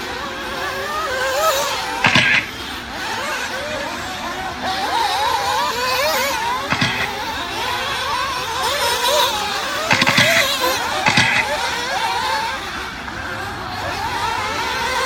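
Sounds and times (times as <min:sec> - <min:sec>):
rc buggy engines whining: 0:00.0 - 0:15.0
sharp clattering knocks: 0:02.0 - 0:02.6, 0:06.7 - 0:07.2, 0:09.9 - 0:11.6.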